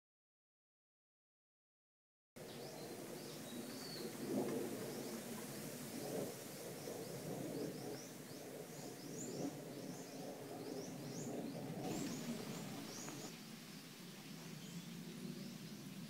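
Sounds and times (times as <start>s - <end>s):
bird chirping: 6.9s - 13.3s.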